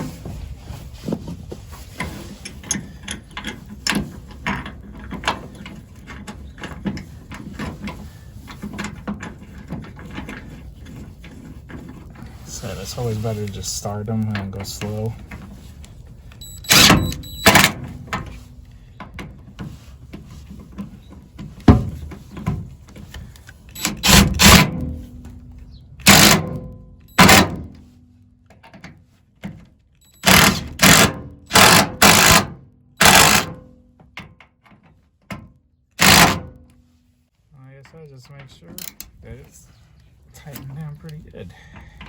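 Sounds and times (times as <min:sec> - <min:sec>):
power driver bursts: 0:16.4 - 0:17.8, 0:23.8 - 0:24.8, 0:26.0 - 0:27.7, 0:30.1 - 0:33.6, 0:36.0 - 0:36.5.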